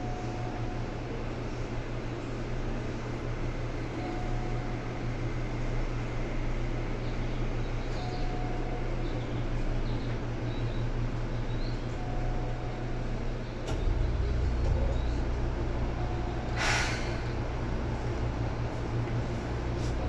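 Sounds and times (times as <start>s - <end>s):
train running rumble and hum: 0.0s - 20.0s
air hiss burst: 16.6s - 17.2s.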